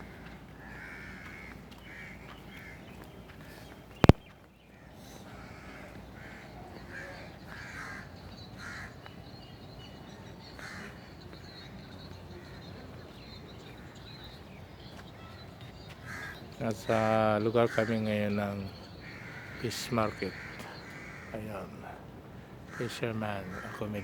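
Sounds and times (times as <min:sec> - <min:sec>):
crows cawing: 0:00.0 - 0:09.1, 0:10.4 - 0:13.0, 0:14.9 - 0:24.0
low background noise: 0:00.0 - 0:24.0.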